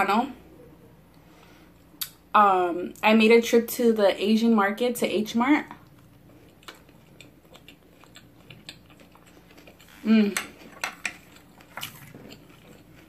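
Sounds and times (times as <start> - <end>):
person chewing: 5.8 - 13.0.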